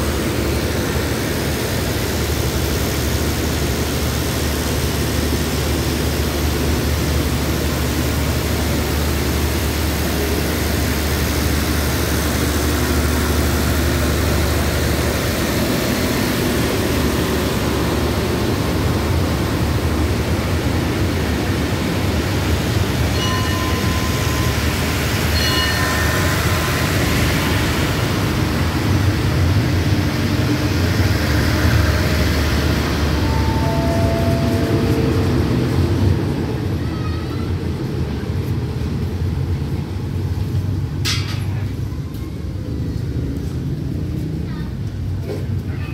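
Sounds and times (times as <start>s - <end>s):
train wheels rumbling: 0.0s - 45.9s
low hum: 23.1s - 36.8s
short high tones: 33.0s - 35.7s.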